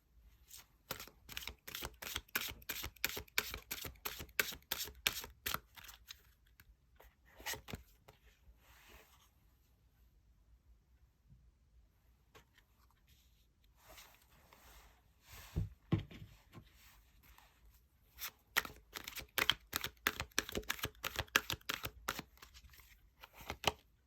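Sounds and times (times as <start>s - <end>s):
cards rustling: 0.9s - 6.6s, 18.2s - 23.8s
cards snapping: 18.6s - 22.3s.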